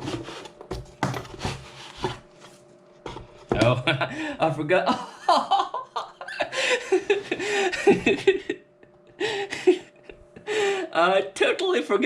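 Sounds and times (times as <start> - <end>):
man laughing: 3.6 - 10.9.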